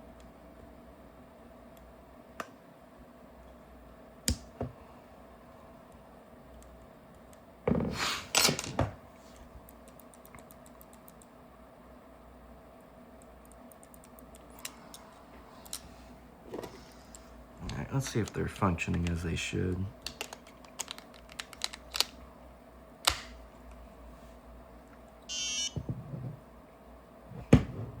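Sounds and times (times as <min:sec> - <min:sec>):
small plastic parts clicking: 0:20.0 - 0:22.1.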